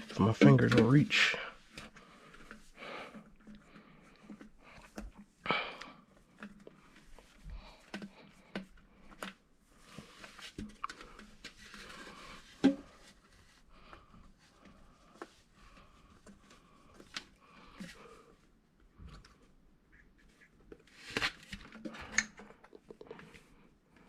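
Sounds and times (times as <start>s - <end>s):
plastic parts clicking and tapping: 6.2s - 9.5s.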